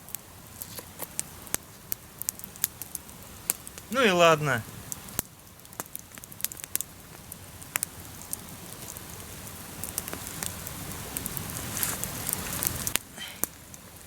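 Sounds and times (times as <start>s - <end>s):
campfire crackling and popping: 0.0s - 14.0s
low steady hiss: 0.0s - 14.0s.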